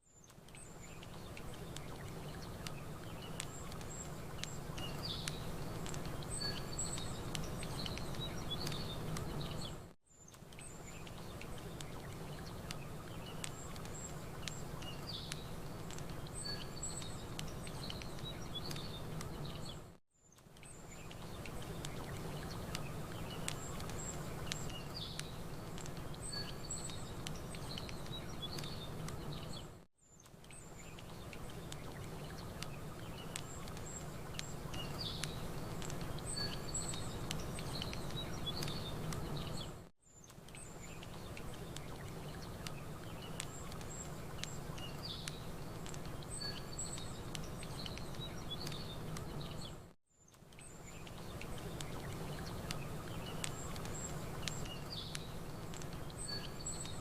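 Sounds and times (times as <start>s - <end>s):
small birds chirping: 0.0s - 57.0s
crackling campfire: 0.1s - 57.0s.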